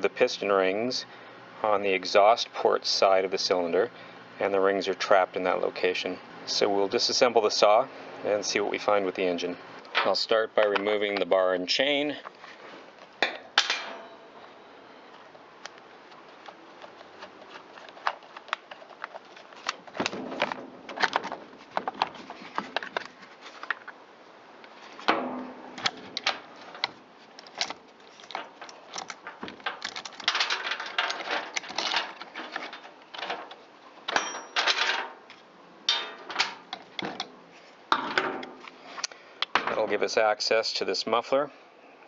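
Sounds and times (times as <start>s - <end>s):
metallic clicks and rattles of tools: 25.7s - 35.1s.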